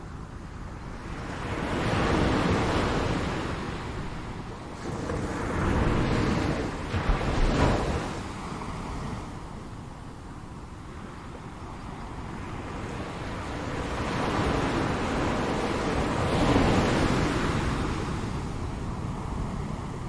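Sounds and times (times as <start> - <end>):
ocean waves breaking on shore: 0.0 - 20.0.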